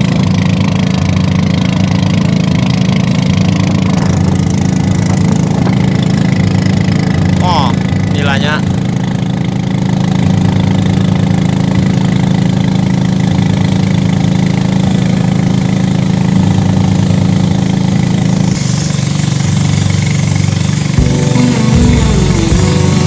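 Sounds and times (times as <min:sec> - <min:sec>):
small engine running: 0:00.0 - 0:23.0
hiss: 0:15.2 - 0:23.0.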